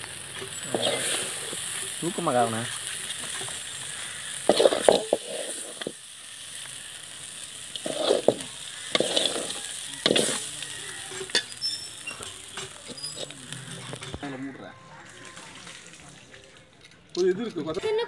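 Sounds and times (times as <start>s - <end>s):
oil sizzling in a frying pan: 0.0s - 16.1s
metal ladle scraping and clinking: 4.5s - 5.9s, 7.8s - 14.2s.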